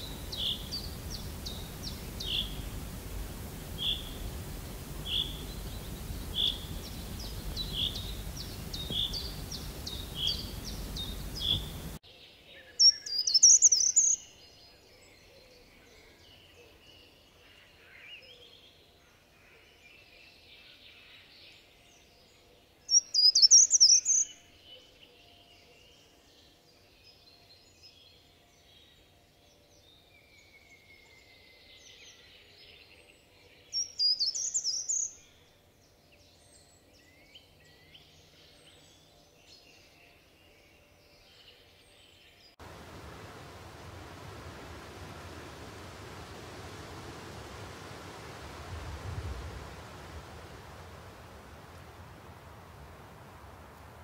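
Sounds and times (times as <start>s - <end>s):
bird trilled song: 0.0s - 2.9s, 5.0s - 12.0s, 12.8s - 14.3s, 22.9s - 24.4s, 33.7s - 35.3s
birds chirping: 0.0s - 12.0s, 12.8s - 14.2s, 42.6s - 54.0s
faint bird calls: 0.0s - 12.0s.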